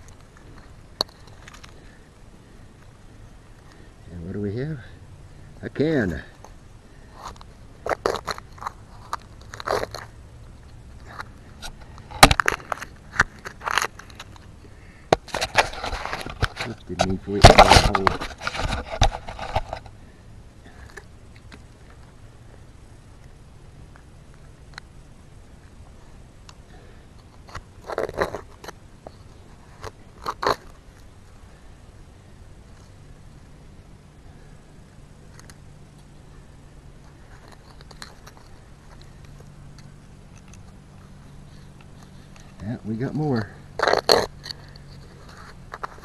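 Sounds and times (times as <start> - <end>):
digging in soil: 5.9 - 20.0
rusty can crunches and knocks: 11.1 - 14.5, 15.1 - 19.9
digging scrapes in dirt: 15.2 - 19.9.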